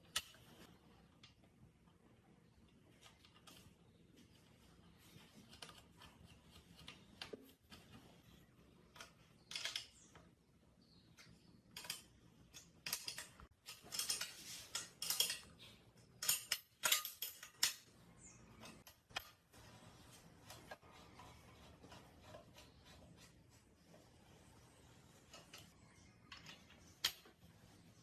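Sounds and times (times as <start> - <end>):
tools clinking on a bench: 11.7 - 17.9.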